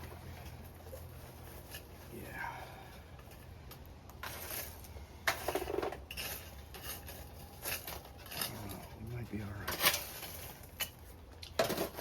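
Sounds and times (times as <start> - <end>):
low steady hum: 0.0 - 12.0
metal tools scraping and clinking: 4.2 - 12.0.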